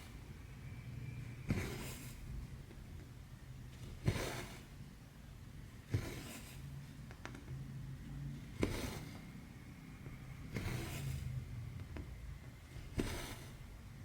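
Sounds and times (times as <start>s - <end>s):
needle piercing cloth: 1.4s - 2.4s, 10.3s - 11.4s.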